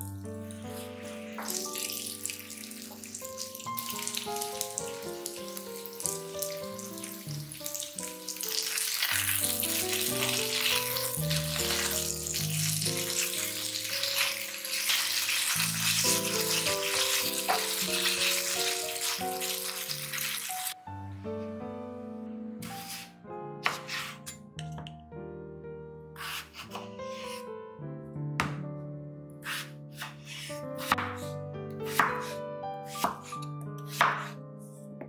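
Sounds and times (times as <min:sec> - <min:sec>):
melodic background music: 0:00.0 - 0:35.0
chicken sizzling in oil: 0:01.3 - 0:20.8.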